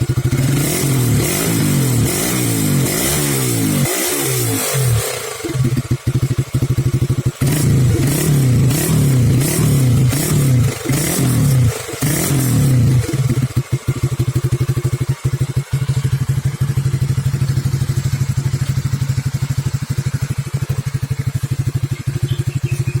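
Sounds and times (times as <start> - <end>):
motorcycle engine idling: 0.0 - 3.8, 4.8 - 23.0
engine rev blip: 20.2 - 23.0.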